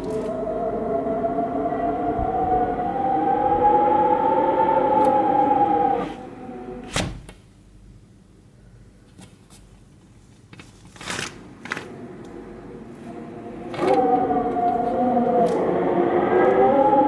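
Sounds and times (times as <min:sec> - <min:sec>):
sliding door scrape: 0:04.7 - 0:07.2.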